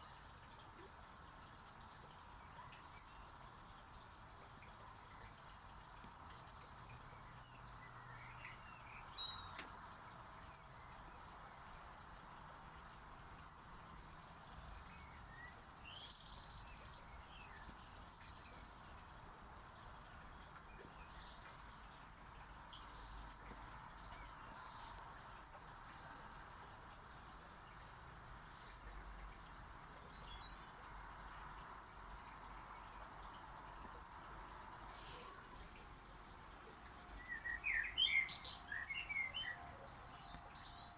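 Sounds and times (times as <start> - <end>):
faint steady background noise: 0.0 - 40.9
small bird high chirps: 7.4 - 9.6, 10.5 - 12.0, 13.4 - 19.8, 20.6 - 40.9.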